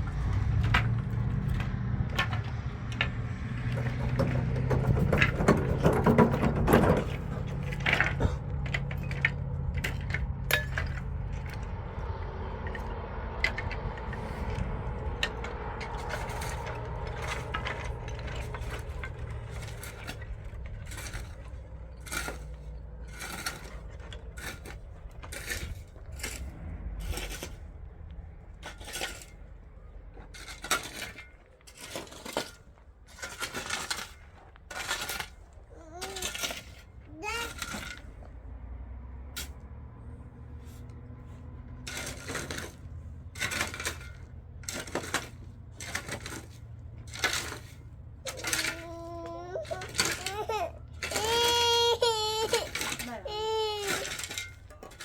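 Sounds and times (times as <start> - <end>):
hard objects clinking and knocking: 0.0 - 27.6, 41.8 - 55.0
low motor hum: 0.0 - 30.6, 34.6 - 55.0.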